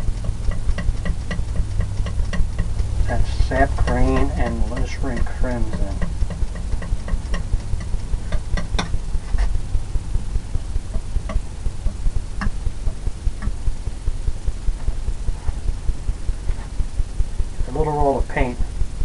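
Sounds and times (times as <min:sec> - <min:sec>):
low rhythmic throbbing: 0:00.0 - 0:19.0
palette knife clicking and tapping: 0:00.2 - 0:02.9, 0:03.8 - 0:08.9.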